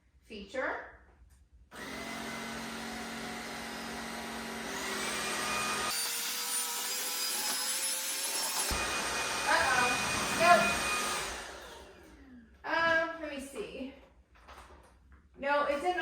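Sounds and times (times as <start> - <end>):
stick vacuum motor whine: 1.8 - 12.2.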